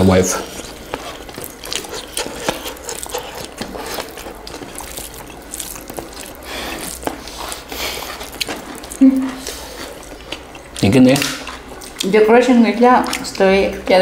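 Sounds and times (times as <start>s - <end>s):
chewing and mouth smacks: 0.3s - 12.1s.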